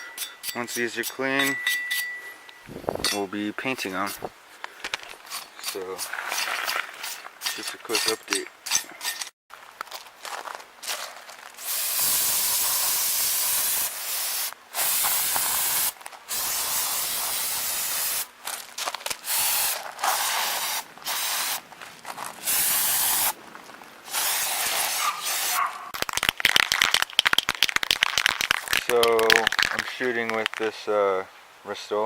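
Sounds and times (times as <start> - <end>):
aerosol spray can hissing: 11.6 - 18.3, 19.2 - 21.6, 22.4 - 23.4, 24.1 - 25.6
quick clicks or crackles: 25.9 - 30.7.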